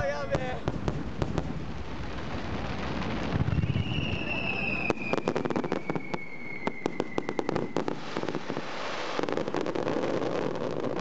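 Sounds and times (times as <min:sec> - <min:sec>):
fireworks crackling: 0:00.0 - 0:11.0
faint falling whistle: 0:03.4 - 0:07.9.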